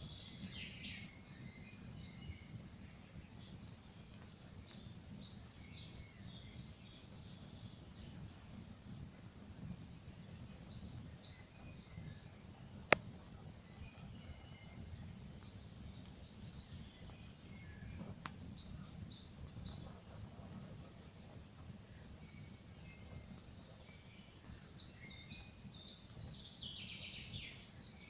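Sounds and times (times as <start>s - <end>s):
small birds chirping: 0.0s - 28.0s
campfire crackling: 12.6s - 13.6s, 15.0s - 24.8s.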